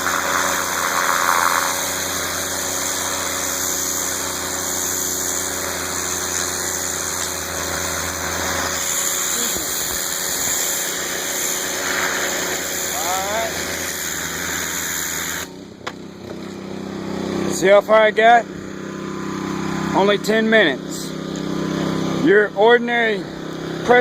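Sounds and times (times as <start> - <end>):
water spray hissing: 0.0 - 15.5
pressure washer engine running: 0.0 - 24.0.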